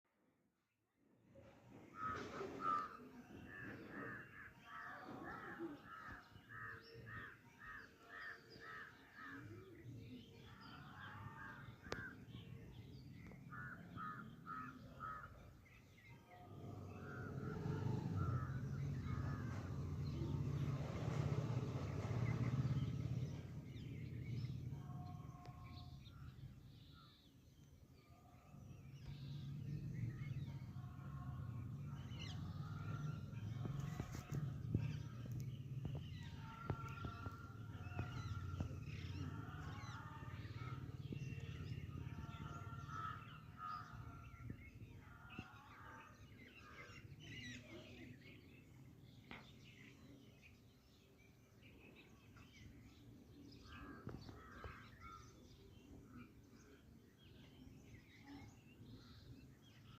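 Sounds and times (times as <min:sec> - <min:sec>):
harsh bird calls: 0:01.7 - 0:27.4.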